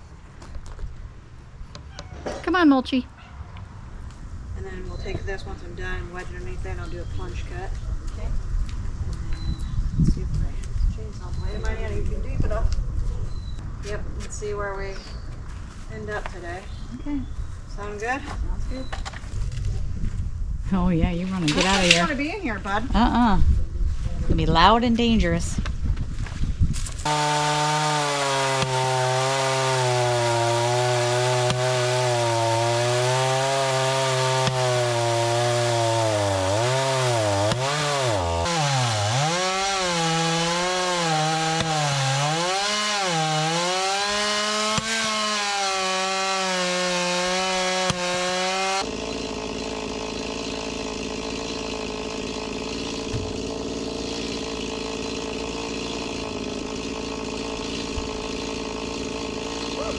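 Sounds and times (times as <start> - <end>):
chainsaw cutting wood: 21.4 - 22.2, 27.0 - 59.9.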